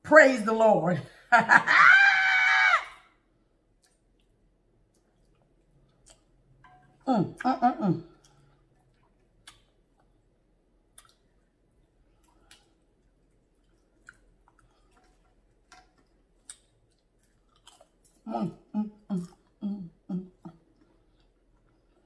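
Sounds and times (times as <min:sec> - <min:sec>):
chewing mouth clicks and smacks: 0:03.8 - 0:06.4, 0:08.2 - 0:10.2, 0:10.9 - 0:11.5, 0:12.1 - 0:18.2.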